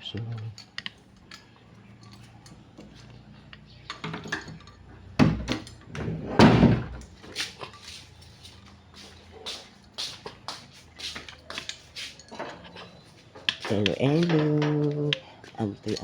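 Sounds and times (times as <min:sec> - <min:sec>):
gate banging shut: 0:06.2 - 0:07.0.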